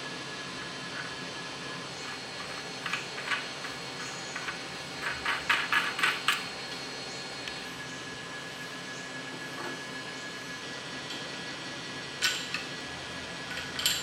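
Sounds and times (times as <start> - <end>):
metal tools clinking: 13.5 - 14.0.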